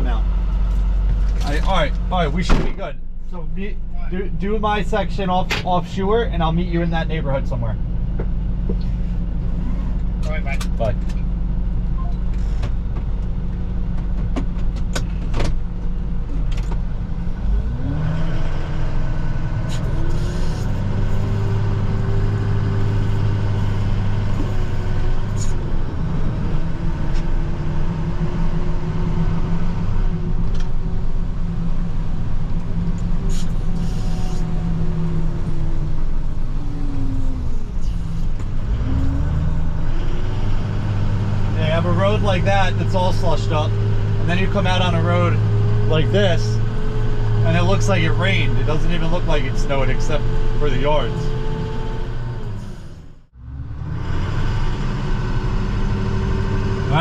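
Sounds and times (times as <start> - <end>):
truck engine running: 0.0 - 57.0.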